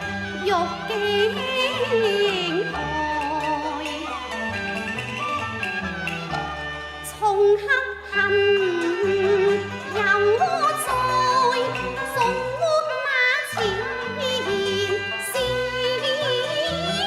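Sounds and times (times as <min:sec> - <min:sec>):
opera band accompaniment: 0:00.0 - 0:17.0
high-pitched voice singing opera: 0:07.2 - 0:17.0.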